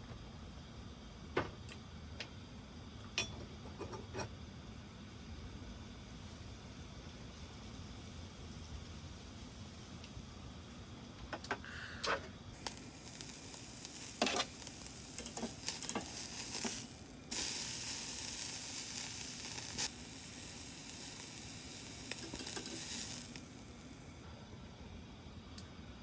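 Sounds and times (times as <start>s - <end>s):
beef sizzling on a grill: 12.5s - 24.2s
sharp clicks and pops: 12.6s - 24.2s.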